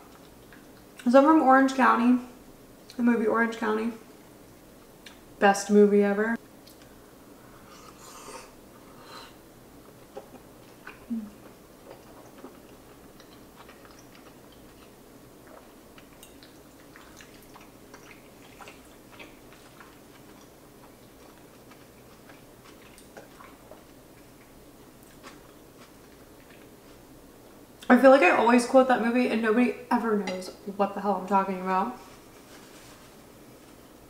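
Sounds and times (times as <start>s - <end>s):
person chewing food: 7.6s - 27.9s.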